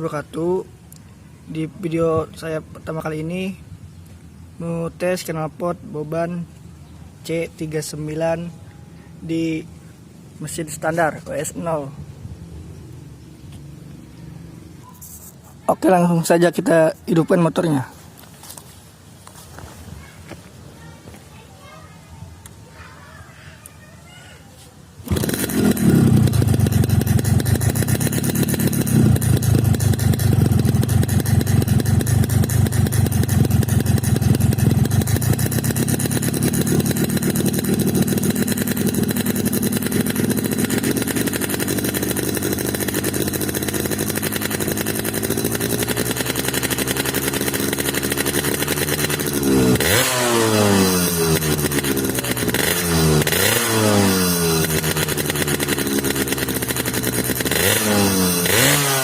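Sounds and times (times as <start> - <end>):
motorcycle engine idling and revving: 25.0 - 59.0.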